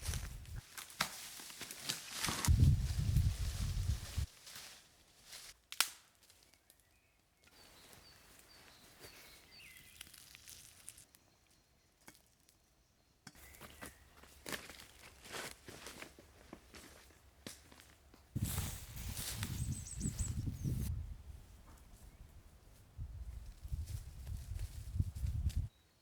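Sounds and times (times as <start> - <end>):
footsteps crunching on forest floor: 0.0 - 5.6, 7.5 - 11.2, 13.4 - 20.5.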